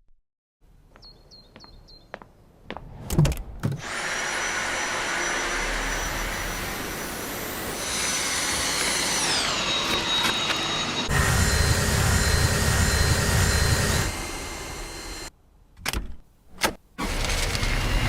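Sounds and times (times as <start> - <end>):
stick vacuum cleaner running: 3.8 - 15.3, 17.0 - 18.0.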